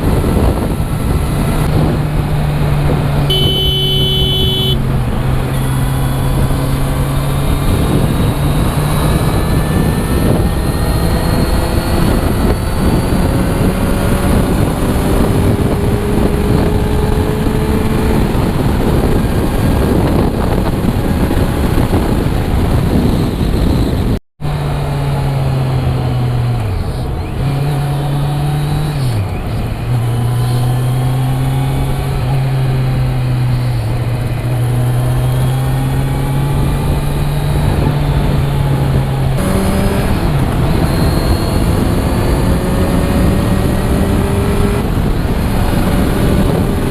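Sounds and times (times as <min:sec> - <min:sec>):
motorcycle engine running: 0:00.0 - 0:27.4
road noise: 0:00.0 - 0:46.9
vehicles passing: 0:00.0 - 0:46.9
wind noise: 0:00.0 - 0:46.9.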